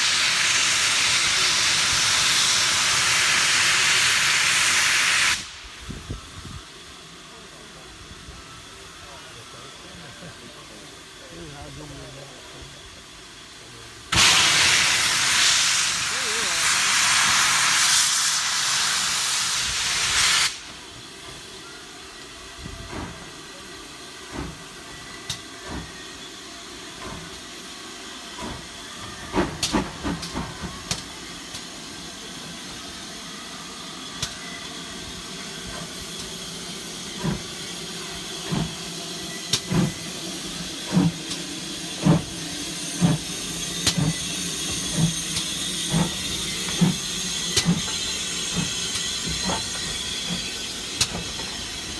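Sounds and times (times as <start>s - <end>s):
loud hiss of released steam: 0.0s - 51.9s
steam locomotive chuffing thuds: 0.0s - 51.9s.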